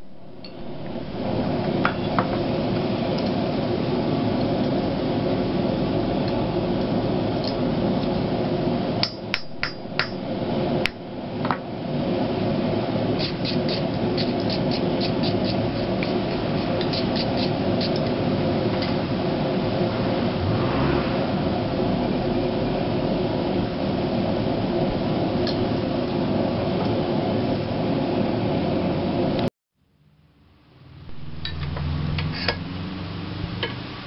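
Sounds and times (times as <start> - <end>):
steady rushing noise: 0.0 - 29.5
hammer striking steel on anvil: 9.0 - 10.2.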